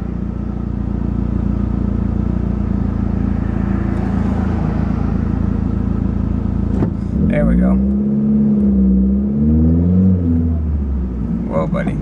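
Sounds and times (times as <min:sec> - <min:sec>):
car engine with leaking exhaust: 0:00.0 - 0:09.3.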